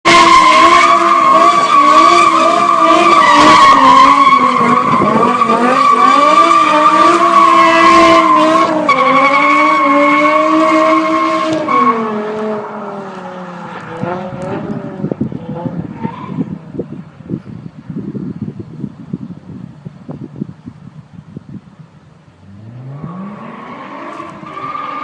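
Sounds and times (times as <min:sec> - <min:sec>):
car engine at high revs: 0:00.0 - 0:16.9, 0:22.4 - 0:25.0.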